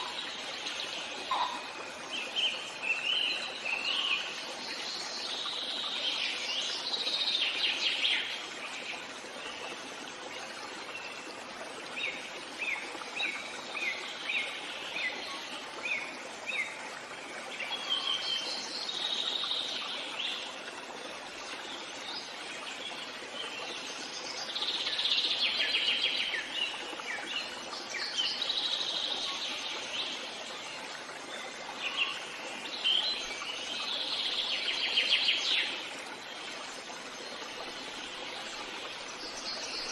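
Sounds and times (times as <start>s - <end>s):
trilled birdsong: 1.2s - 1.6s.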